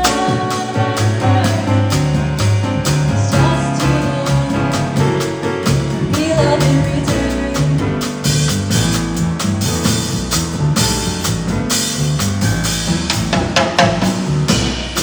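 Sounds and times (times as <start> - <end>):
person singing: 0.0 - 1.8, 3.2 - 5.0, 6.0 - 8.0
bass line: 0.0 - 15.0
drums with cymbal strokes: 0.0 - 15.0.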